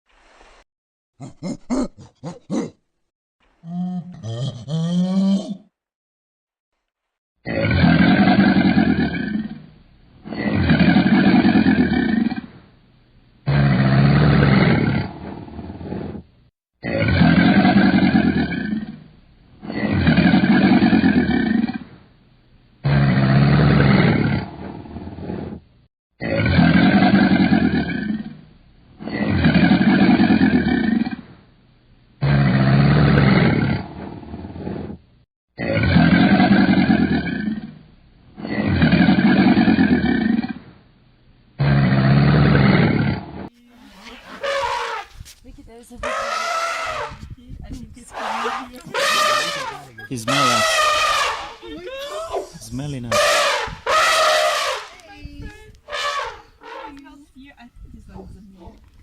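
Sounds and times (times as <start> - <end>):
large animal roaring: 7.4 - 12.6, 13.5 - 16.2, 16.8 - 19.0, 19.6 - 21.9, 22.8 - 25.6, 26.2 - 28.4, 32.2 - 35.0, 35.6 - 37.7, 38.4 - 40.7, 41.6 - 43.5, 48.1 - 51.6, 53.1 - 54.9, 55.9 - 57.0.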